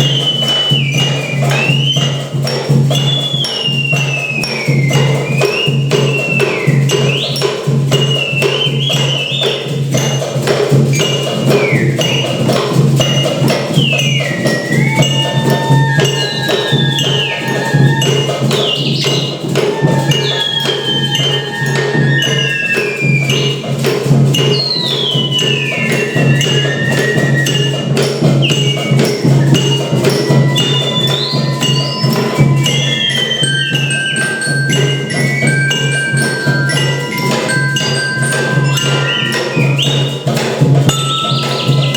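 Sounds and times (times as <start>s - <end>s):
bell tones: 0.0s - 41.9s
percussion ensemble playing: 0.0s - 41.9s
tambourine jingles: 0.0s - 41.9s
wood-block knocks: 0.0s - 41.9s
high sliding tones: 11.0s - 41.9s.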